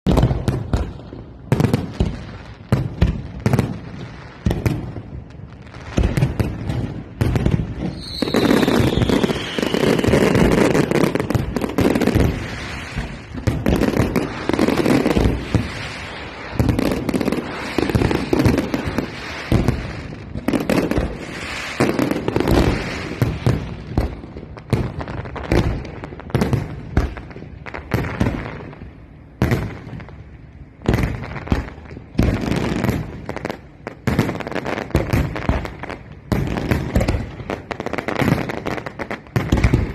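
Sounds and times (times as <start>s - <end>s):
firework bangs and booms: 0.0s - 39.9s
firework crackling: 0.0s - 39.9s
firework whistle falling in pitch: 7.9s - 10.5s.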